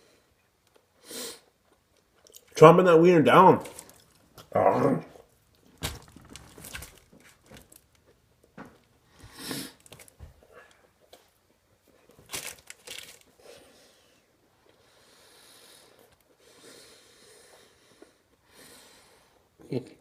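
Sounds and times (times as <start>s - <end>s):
person chewing food: 0.4s - 2.6s, 3.6s - 13.4s.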